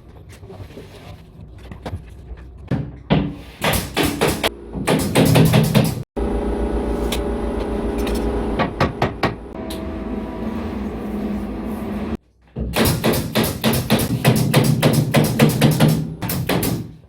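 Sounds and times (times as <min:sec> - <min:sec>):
mechanical hum with low rumble: 0:04.4 - 0:12.2.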